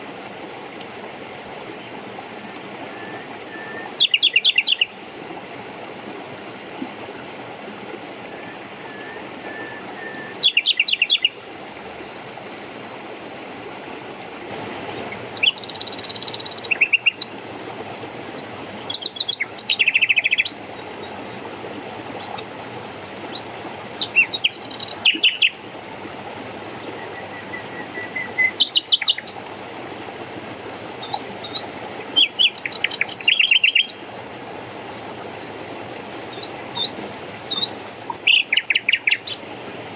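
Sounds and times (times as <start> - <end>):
songbirds chirping: 1.7 - 5.2, 8.4 - 11.6, 15.0 - 25.7, 26.5 - 34.2, 35.2 - 39.7.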